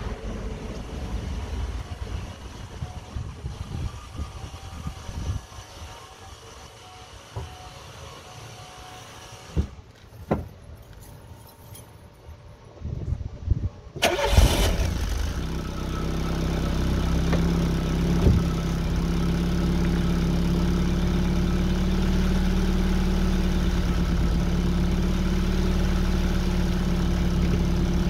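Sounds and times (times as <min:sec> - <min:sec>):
car engine cranking and idling: 0:00.0 - 0:03.6, 0:13.9 - 0:28.0.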